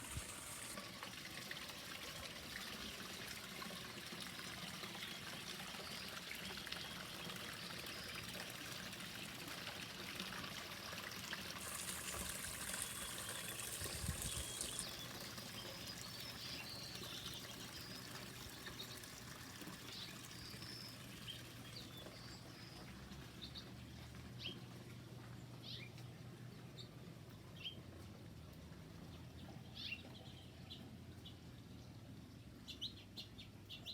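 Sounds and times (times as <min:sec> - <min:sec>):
water trickling: 0:00.0 - 0:24.2
birds chirping: 0:11.6 - 0:23.8.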